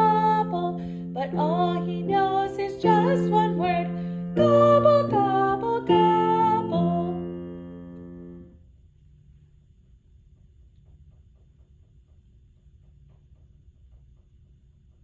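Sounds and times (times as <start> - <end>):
woman singing children's song: 0.0 - 7.6.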